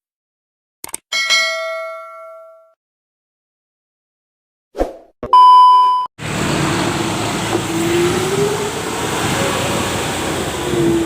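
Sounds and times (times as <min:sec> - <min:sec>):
vehicle engine and road noise: 0:06.2 - 0:11.0.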